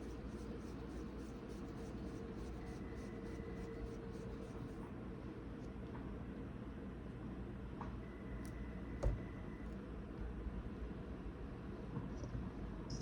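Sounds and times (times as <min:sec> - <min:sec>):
hands rubbing dough: 0:00.0 - 0:04.9
faint room hum: 0:00.0 - 0:13.0.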